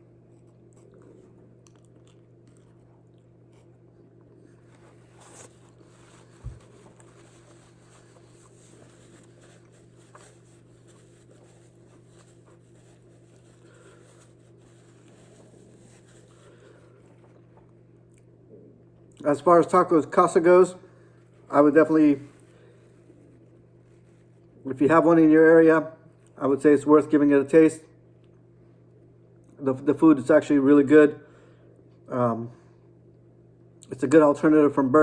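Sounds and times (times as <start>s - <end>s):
steady low hum: 0.0s - 35.0s
quiet chewing: 0.1s - 19.3s
food wrapper rustling: 0.7s - 17.7s.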